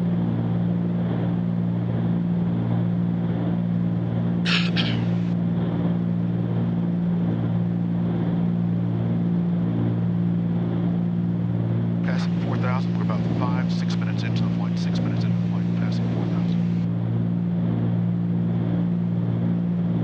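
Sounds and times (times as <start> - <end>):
piston aircraft engines droning: 0.0 - 20.0.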